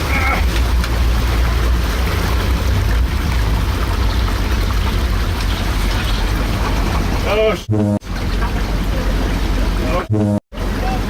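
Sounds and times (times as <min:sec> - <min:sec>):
diesel engine rumbling: 0:00.0 - 0:11.0
noisy wash: 0:00.0 - 0:11.0.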